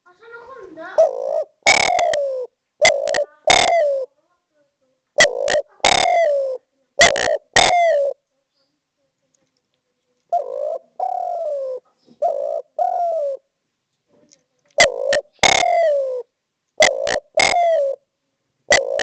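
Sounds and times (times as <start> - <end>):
dove cooing: 0.7 - 4.2, 5.2 - 8.2, 10.3 - 13.5, 14.7 - 18.1, 18.7 - 19.0.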